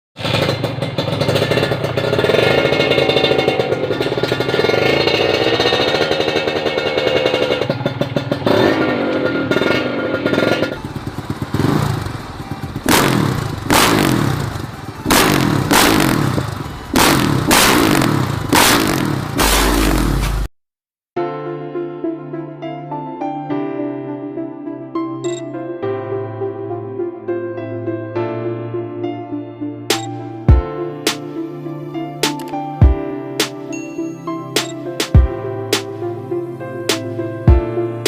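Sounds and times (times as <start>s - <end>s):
engine throttle blips: 0.2s - 20.5s
motorcycle engine revving: 0.2s - 20.5s.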